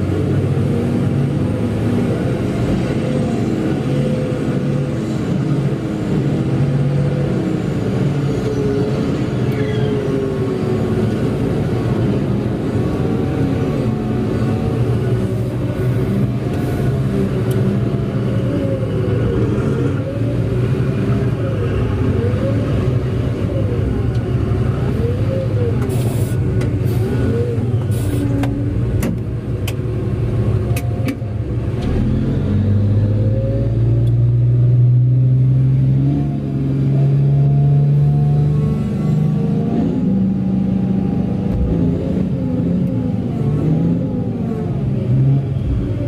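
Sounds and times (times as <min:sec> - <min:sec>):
large diesel engine running: 0:00.0 - 0:36.1.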